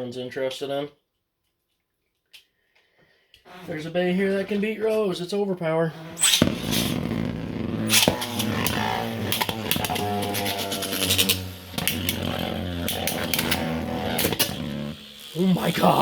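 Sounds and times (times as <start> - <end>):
spinning tops humming: 6.2 - 16.0.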